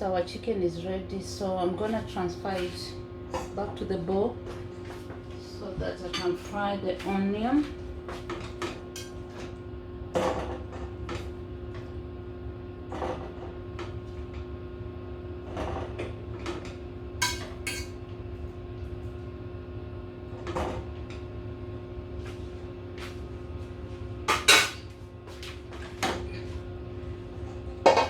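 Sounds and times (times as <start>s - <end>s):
metal utensil clinking on pot: 17.2s - 17.9s.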